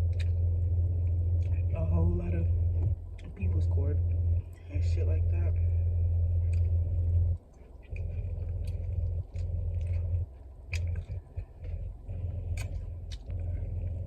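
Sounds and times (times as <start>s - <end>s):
chewing and mouth clicks: 0.0s - 1.7s, 3.1s - 3.5s, 6.4s - 14.0s
loud low hum: 0.0s - 14.0s.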